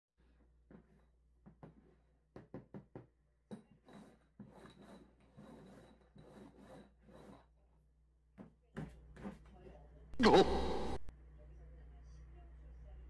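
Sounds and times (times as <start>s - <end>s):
cups sliding on cardboard: 3.8s - 7.5s.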